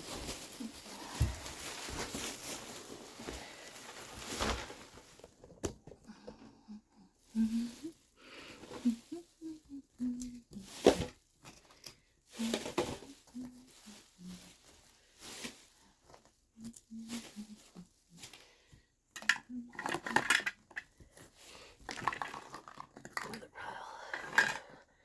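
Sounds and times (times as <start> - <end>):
household items clattering: 0.0 - 6.6, 10.3 - 14.0, 19.1 - 24.8.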